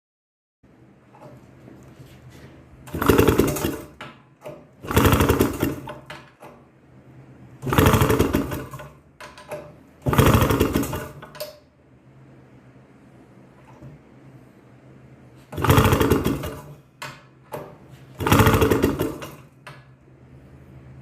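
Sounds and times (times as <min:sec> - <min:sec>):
motorcycle engine cranking: 0:02.9 - 0:06.5, 0:07.6 - 0:11.6, 0:15.5 - 0:16.8, 0:18.2 - 0:19.6.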